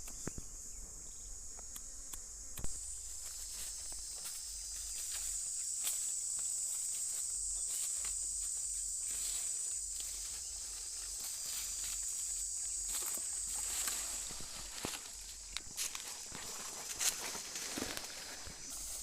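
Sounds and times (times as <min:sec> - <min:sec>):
insect chorus droning: 0:00.0 - 0:19.0.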